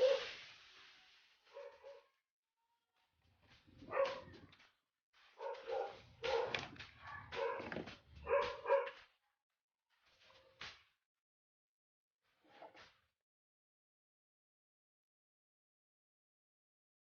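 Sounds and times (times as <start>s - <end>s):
dog barking: 0.0s - 0.4s, 1.5s - 2.2s, 3.8s - 4.5s, 5.4s - 9.0s.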